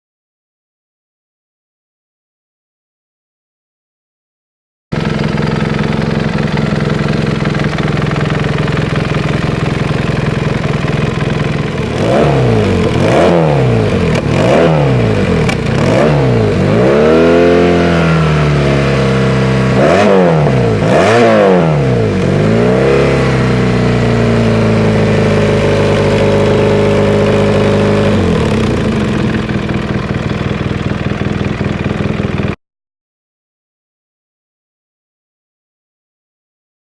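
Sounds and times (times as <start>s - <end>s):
motorcycle engine idling and revving: 4.9s - 32.6s.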